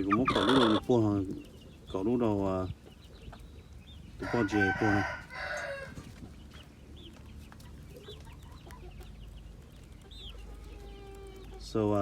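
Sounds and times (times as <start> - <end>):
chickens chirping and clucking: 0.0 - 12.0
rooster crowing: 4.2 - 6.0.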